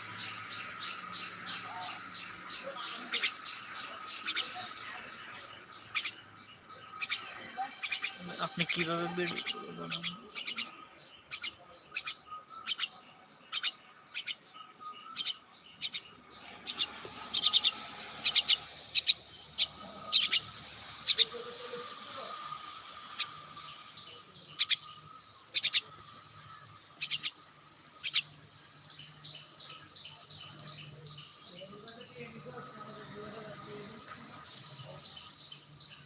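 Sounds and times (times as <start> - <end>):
bird chirping: 0.0 - 36.0.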